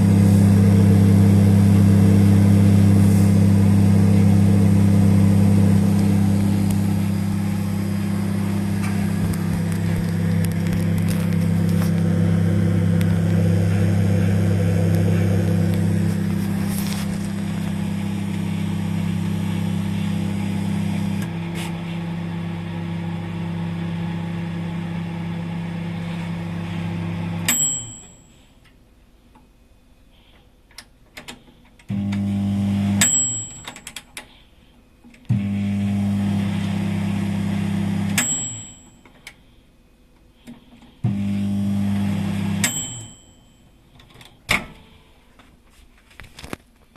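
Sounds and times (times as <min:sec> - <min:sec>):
microwave oven humming: 0:00.0 - 0:28.5, 0:31.9 - 0:34.0, 0:35.3 - 0:39.1, 0:41.0 - 0:43.7
microwave beep: 0:26.5 - 0:28.3, 0:32.0 - 0:33.9, 0:35.4 - 0:39.1, 0:41.1 - 0:43.7.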